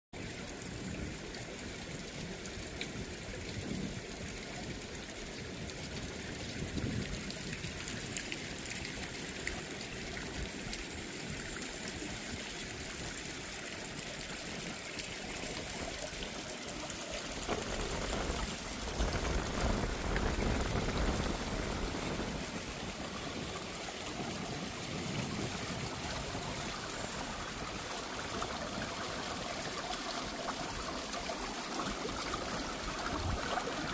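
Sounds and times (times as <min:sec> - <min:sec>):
stream trickling: 0:00.2 - 0:33.9
wind gust on microphone: 0:17.4 - 0:27.8.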